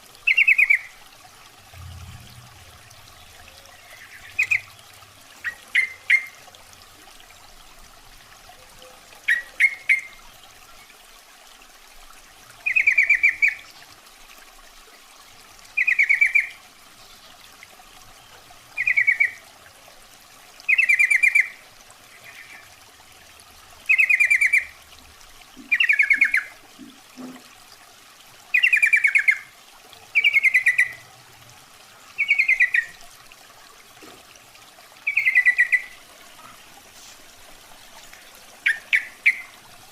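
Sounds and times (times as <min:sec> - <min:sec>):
bulbul calls: 0:01.8 - 0:04.7, 0:18.8 - 0:19.4, 0:25.6 - 0:26.5, 0:30.2 - 0:31.0, 0:32.2 - 0:32.9, 0:35.0 - 0:36.6, 0:38.6 - 0:39.5.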